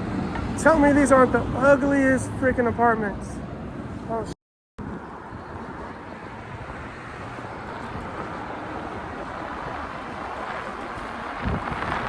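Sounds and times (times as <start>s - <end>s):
low road rumble: 0.0s - 12.0s
wind rushing on microphone: 4.8s - 12.0s.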